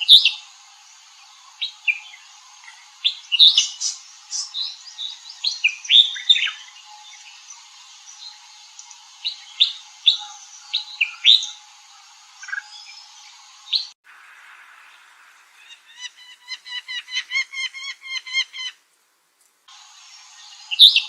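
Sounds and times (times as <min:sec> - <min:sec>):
bird chirping: 0:01.2 - 0:11.7, 0:12.4 - 0:18.8, 0:19.9 - 0:21.0.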